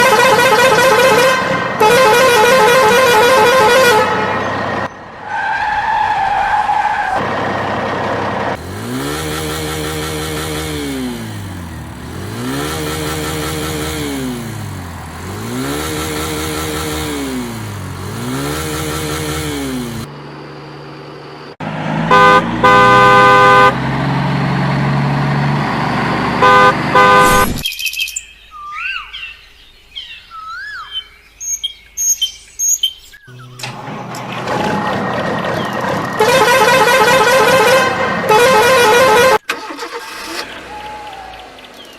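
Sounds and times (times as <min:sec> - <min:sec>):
horn blasts: 0:00.0 - 0:04.9, 0:22.0 - 0:23.8, 0:26.4 - 0:27.6, 0:35.8 - 0:40.3
vehicle engine revving: 0:00.0 - 0:05.4, 0:06.5 - 0:27.6, 0:33.3 - 0:41.9
birds chirping: 0:27.5 - 0:33.7, 0:34.5 - 0:36.3, 0:40.3 - 0:41.9.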